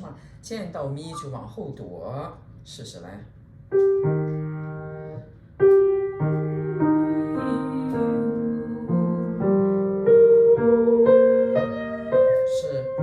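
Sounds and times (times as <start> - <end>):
piano chords and held notes: 3.7 - 13.0.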